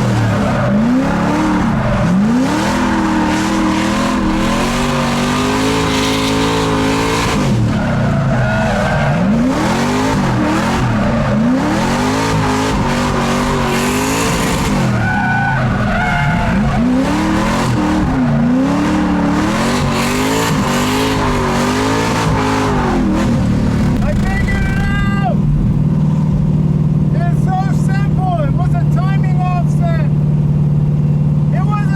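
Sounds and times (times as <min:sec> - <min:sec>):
tyres squealing and skidding: 0:00.0 - 0:25.1
car engine revving: 0:00.0 - 0:31.9.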